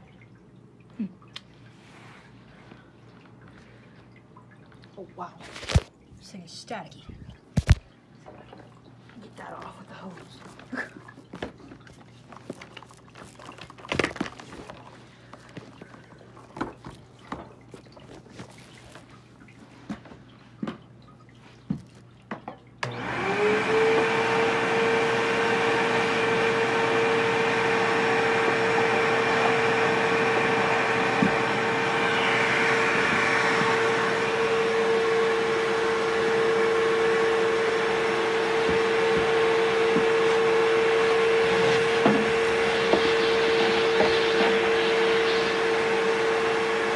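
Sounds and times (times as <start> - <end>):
vacuum cleaner motor whine: 22.8 - 46.9.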